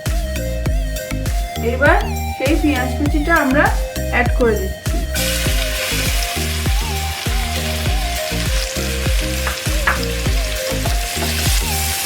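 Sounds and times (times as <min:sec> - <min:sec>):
background music with beat: 0:00.0 - 0:12.0
onions sizzling in oil: 0:05.2 - 0:12.0.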